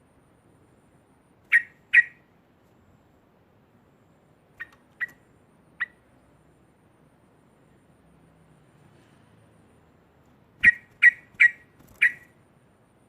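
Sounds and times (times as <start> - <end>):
bird giving sharp calls: 1.5 - 2.3, 4.6 - 5.2, 5.8 - 6.0, 10.6 - 12.3.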